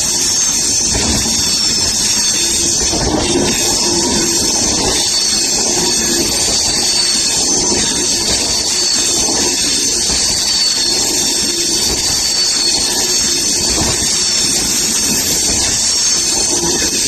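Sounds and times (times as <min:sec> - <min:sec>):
thin high whine: 0:00.0 - 0:17.0
train wheels rushing on track: 0:00.0 - 0:17.0.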